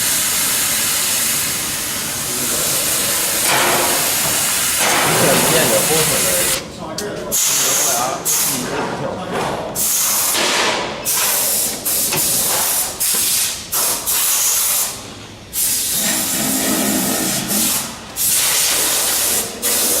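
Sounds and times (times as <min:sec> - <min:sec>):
plasma cutting torch hissing: 0:00.0 - 0:06.6, 0:15.6 - 0:20.0.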